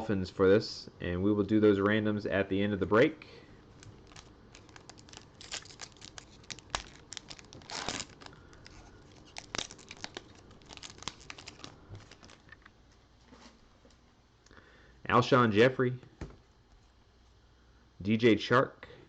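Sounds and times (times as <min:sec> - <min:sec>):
foil pack ripping: 0:03.7 - 0:12.6
foil wrapper crinkling: 0:03.7 - 0:12.6.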